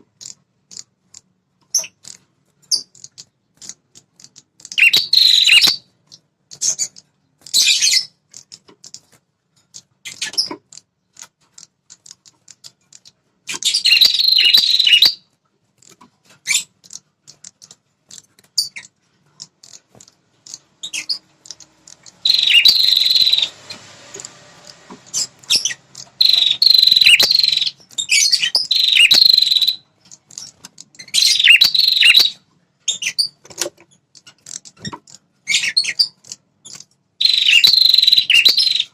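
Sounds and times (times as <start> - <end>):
songbird chattering song: 0.0 - 9.0, 12.0 - 15.2, 20.4 - 33.4, 35.4 - 38.9.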